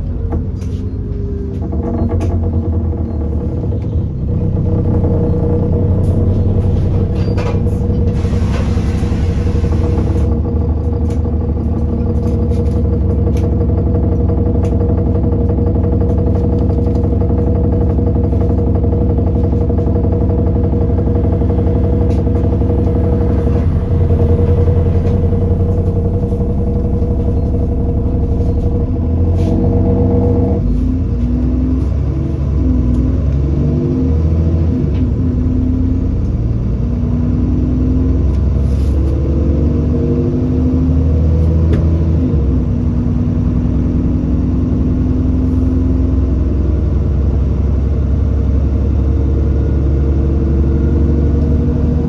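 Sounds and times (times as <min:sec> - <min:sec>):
bus engine running: 0:00.0 - 0:52.0.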